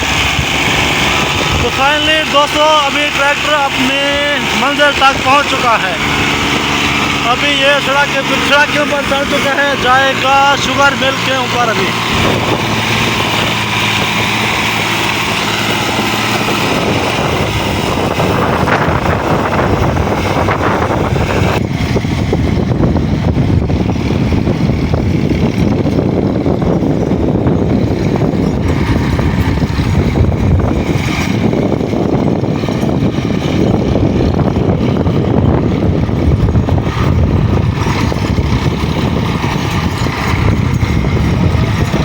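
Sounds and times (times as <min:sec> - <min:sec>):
diesel tractor engine under load: 0:00.0 - 0:42.0.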